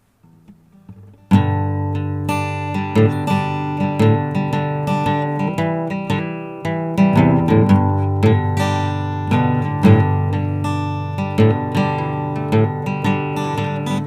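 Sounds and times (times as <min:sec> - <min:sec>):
acoustic blues guitar: 0:00.1 - 0:14.0.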